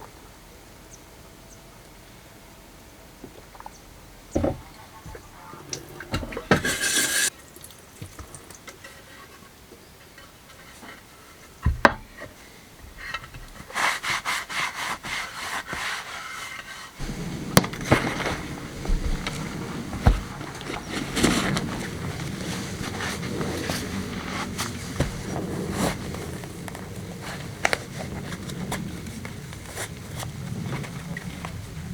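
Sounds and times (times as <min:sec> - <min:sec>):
objects knocking and scraping: 0:04.4 - 0:07.3, 0:17.0 - 0:28.9.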